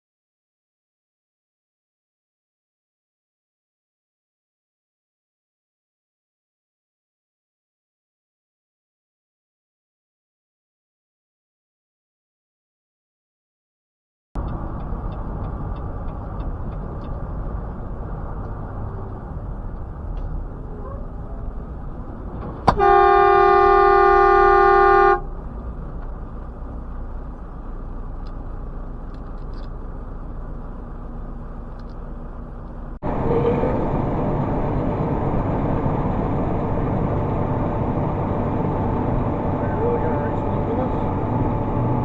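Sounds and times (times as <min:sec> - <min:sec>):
car road noise: 0:14.4 - 0:42.0
car horn blast: 0:22.7 - 0:25.3.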